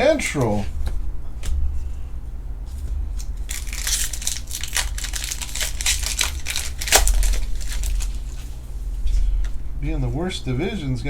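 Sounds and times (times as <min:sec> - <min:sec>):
steady low hum: 0:00.0 - 0:11.0
foil wrappers crinkling: 0:02.7 - 0:09.6.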